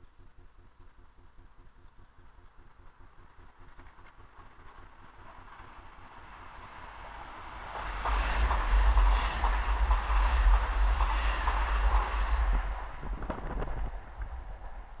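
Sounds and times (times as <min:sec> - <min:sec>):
wheels clattering on rails: 0:02.8 - 0:15.0
passenger train passing: 0:03.1 - 0:15.0
wind buffeting microphone: 0:07.0 - 0:15.0.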